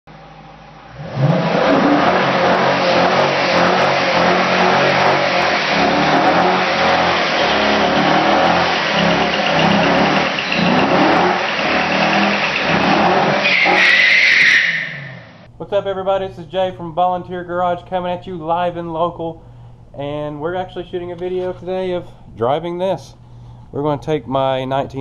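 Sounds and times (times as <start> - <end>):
loud vee eight engine revving: 0.1 - 15.5.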